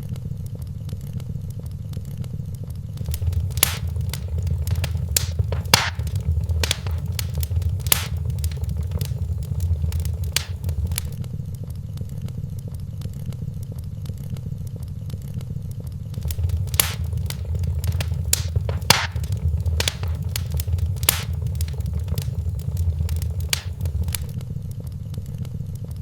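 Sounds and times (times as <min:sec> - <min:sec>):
wood fire crackling: 0:03.0 - 0:11.2, 0:16.2 - 0:24.4.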